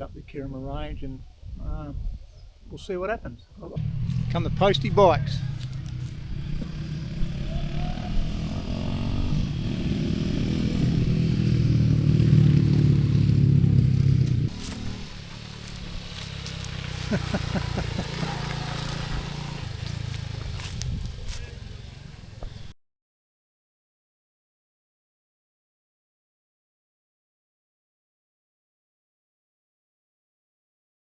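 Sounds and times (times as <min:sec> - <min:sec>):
motorcycle engine revs: 0:03.8 - 0:22.7
small motorcycles riding past: 0:03.8 - 0:22.8.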